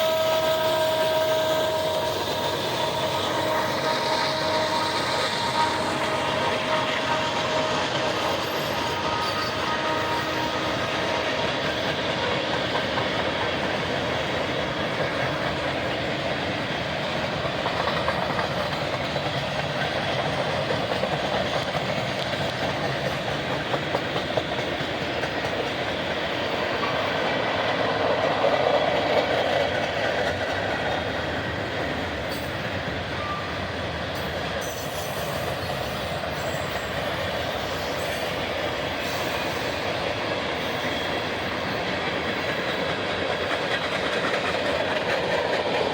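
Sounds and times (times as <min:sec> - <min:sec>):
freight train cars rolling on rails: 0:00.0 - 0:45.9.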